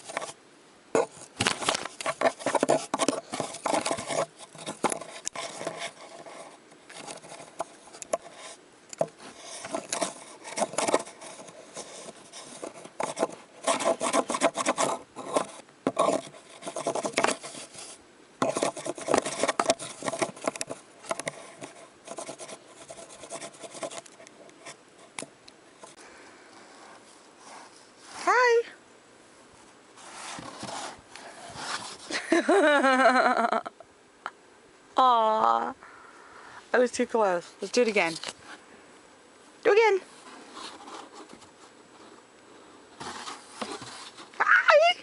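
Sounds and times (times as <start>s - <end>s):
pet scratching at a box: 1.0s - 8.6s, 9.2s - 24.2s, 30.0s - 32.1s, 40.2s - 42.1s, 43.0s - 44.4s.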